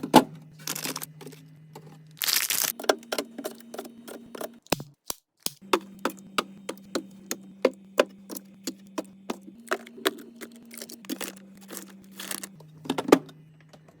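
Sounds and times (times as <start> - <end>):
containers clacking and tapping: 2.7 - 12.6
steady low hum: 5.5 - 13.9.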